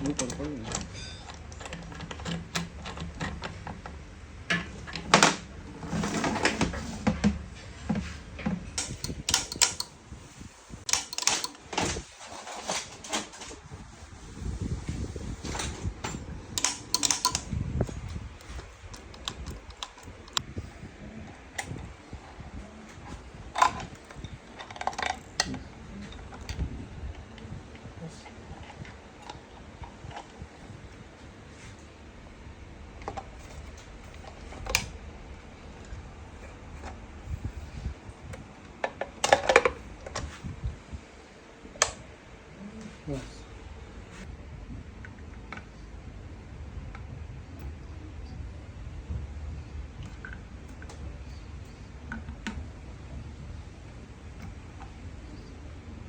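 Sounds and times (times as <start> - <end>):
metal parts and tools clinking: 0.0 - 3.2, 8.8 - 10.0, 10.9 - 13.6, 15.4 - 20.4
steady low hum: 0.0 - 56.0.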